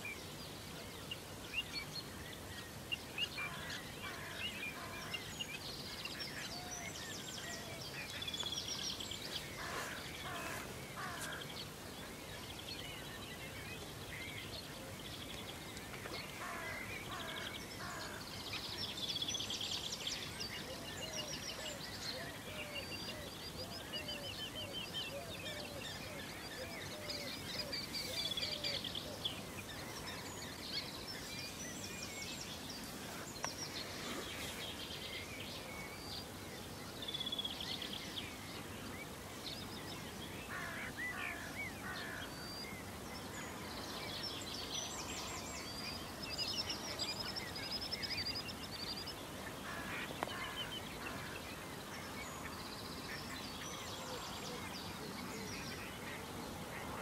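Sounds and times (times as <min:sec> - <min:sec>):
birds trilling and calling: 0:01.6 - 0:18.8.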